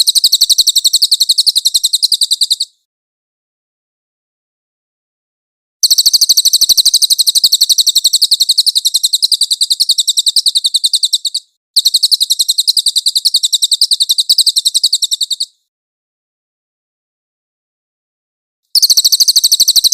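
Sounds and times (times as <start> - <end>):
songbird high-pitched trill: 0.0 - 2.8, 5.8 - 15.6, 18.8 - 19.9.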